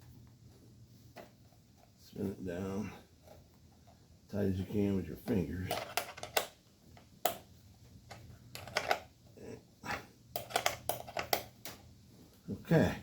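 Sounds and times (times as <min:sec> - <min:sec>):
small parts clicking and tapping: 0:05.6 - 0:09.1, 0:10.3 - 0:11.9.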